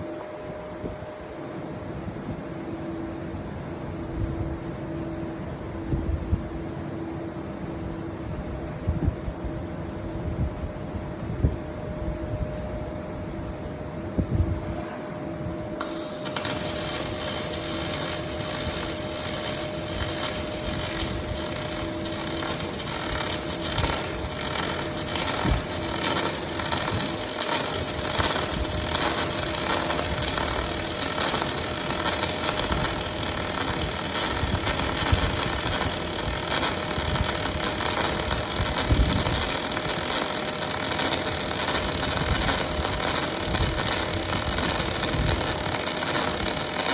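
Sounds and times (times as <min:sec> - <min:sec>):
steady machine hum: 0:10.5 - 0:46.9
welding arc hissing crackle: 0:15.8 - 0:46.9.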